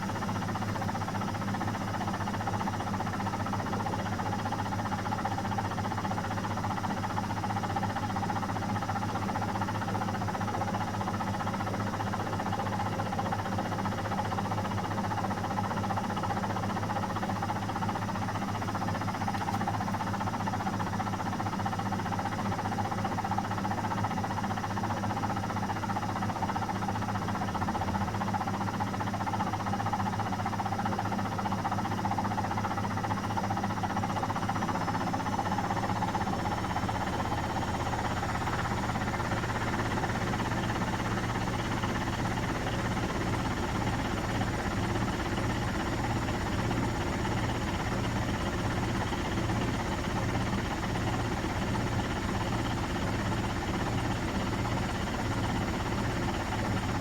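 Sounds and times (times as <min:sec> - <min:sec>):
washing machine motor whine: 0:30.4 - 0:57.0.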